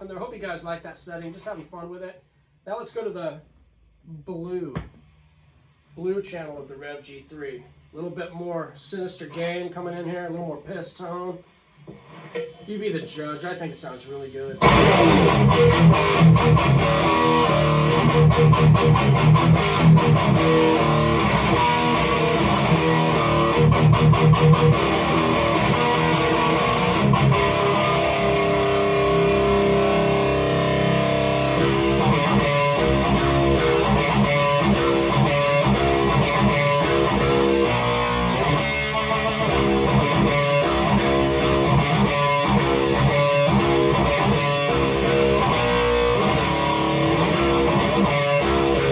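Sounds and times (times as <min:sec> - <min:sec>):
distorted electric guitar riffs: 0:11.4 - 0:48.9.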